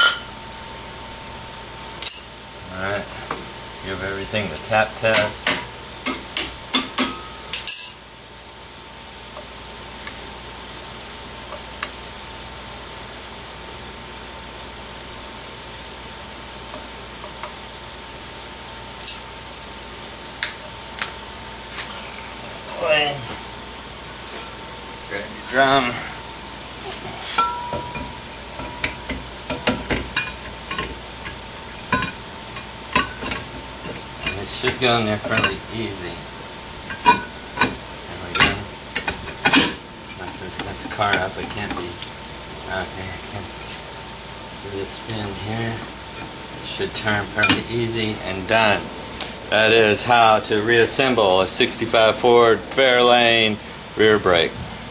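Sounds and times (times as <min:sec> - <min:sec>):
brake drum clinking metallically: 0:02.0 - 0:02.4, 0:27.4 - 0:36.0.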